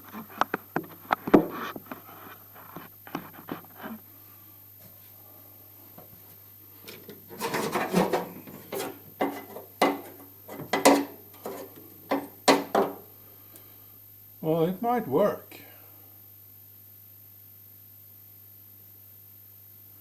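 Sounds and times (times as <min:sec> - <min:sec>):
cables rubbing and clattering: 0:06.8 - 0:13.0
sharp knocks on sheet metal: 0:07.4 - 0:13.0.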